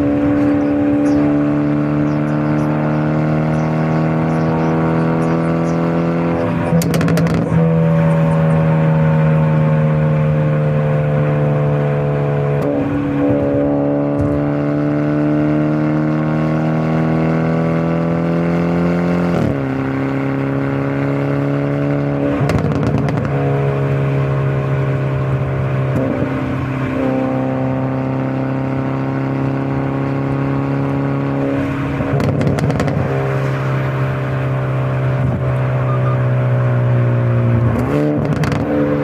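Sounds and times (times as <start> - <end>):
car engine and exhaust: 0.0 - 39.0
exhaust crackle: 3.5 - 10.8, 22.0 - 27.2, 31.8 - 39.0.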